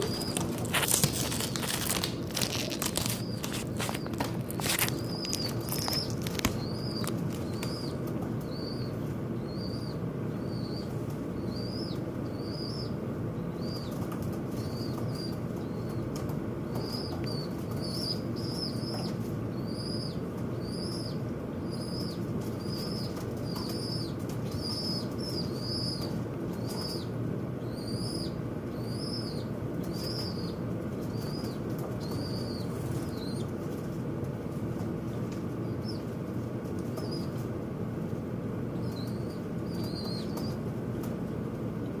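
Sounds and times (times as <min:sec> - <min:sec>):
wings fluttering: 0:00.0 - 0:08.7.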